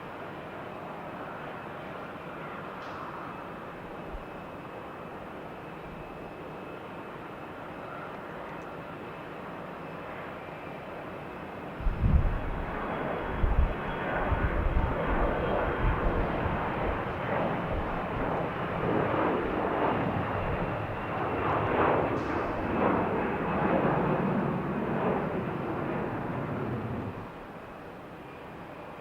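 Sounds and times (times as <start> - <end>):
airliner engines rushing: 0.0 - 29.0
wind thumps on microphone: 11.8 - 12.6.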